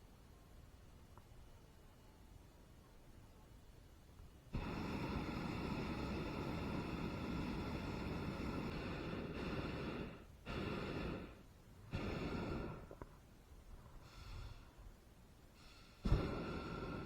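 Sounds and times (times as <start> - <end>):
propane burner firing blasts: 4.5 - 13.3, 14.0 - 17.0.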